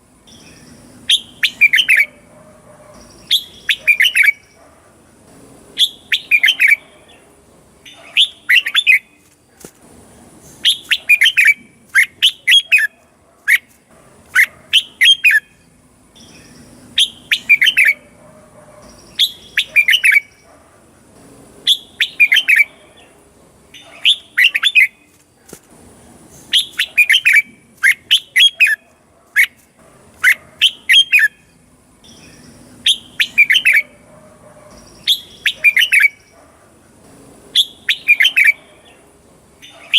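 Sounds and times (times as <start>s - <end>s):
bird singing whistled notes: 0.3s - 2.2s, 3.0s - 4.6s, 5.8s - 6.9s, 7.9s - 9.2s, 10.6s - 13.7s, 14.4s - 18.1s, 18.8s - 20.5s, 21.7s - 22.8s, 23.8s - 25.1s, 26.5s - 28.8s, 30.2s - 34.0s, 34.8s - 36.4s, 37.6s - 38.7s.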